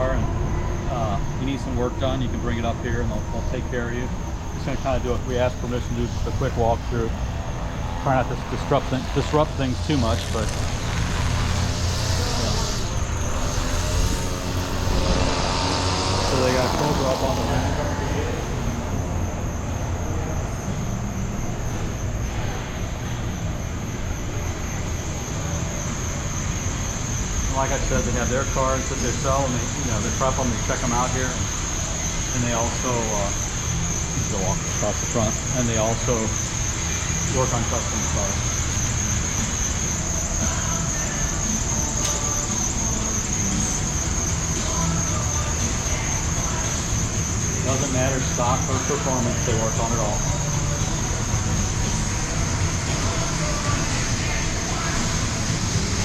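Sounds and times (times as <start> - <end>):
faint high whine: 0.0 - 56.0
low rumbling background noise: 0.0 - 56.0
low rumble: 3.6 - 20.0.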